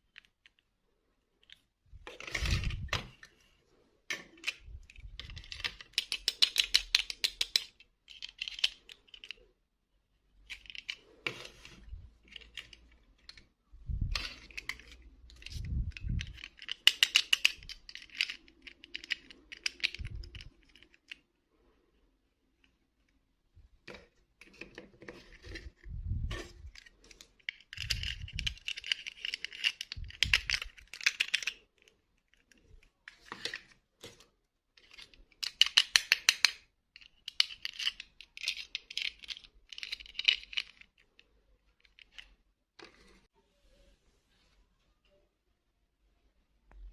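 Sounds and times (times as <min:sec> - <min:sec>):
toys clicking and rattling: 0:04.1 - 0:09.5, 0:10.4 - 0:21.3, 0:26.6 - 0:33.7, 0:34.8 - 0:42.4.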